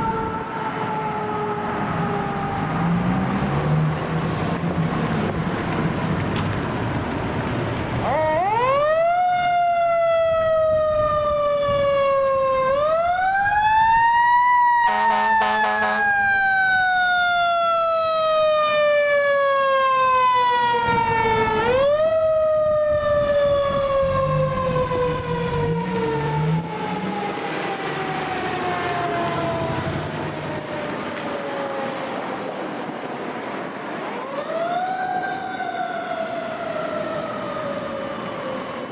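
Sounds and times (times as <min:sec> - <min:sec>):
fire engine rumble: 0:00.0 - 0:38.9
fire engine siren wailing: 0:00.0 - 0:38.9
short pulsing horn blast: 0:14.9 - 0:16.1.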